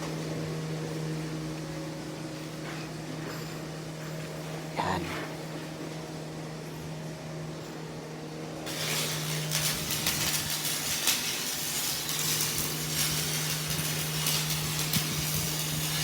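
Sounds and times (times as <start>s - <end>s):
arc welding crackling hiss: 8.6s - 16.0s.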